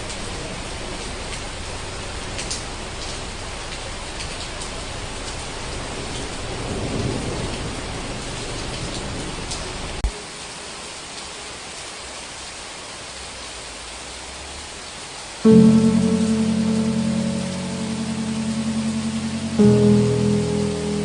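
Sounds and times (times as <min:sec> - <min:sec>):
rain hiss: 0:00.0 - 0:21.0
thunder rumble: 0:05.8 - 0:09.5, 0:15.5 - 0:21.0.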